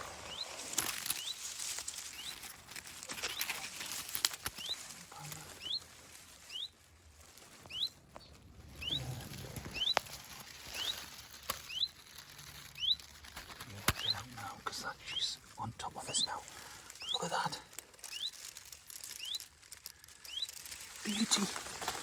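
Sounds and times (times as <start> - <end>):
rustling of reeds: 0.0 - 22.0
bird alarm call: 4.6 - 4.8, 5.6 - 5.8, 6.5 - 6.7, 7.6 - 8.0, 8.8 - 10.0, 10.7 - 11.0, 11.6 - 12.0, 12.7 - 13.1, 13.9 - 18.4, 19.2 - 19.5, 20.2 - 21.5.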